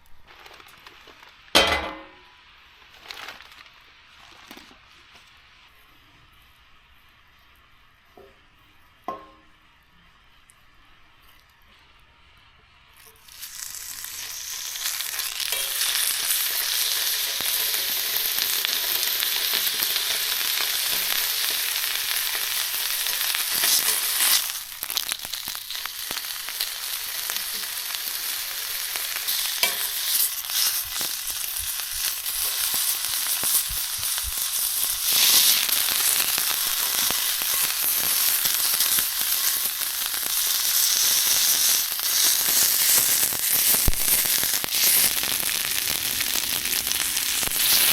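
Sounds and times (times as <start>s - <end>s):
food sizzling in hot pan: 13.0s - 47.9s.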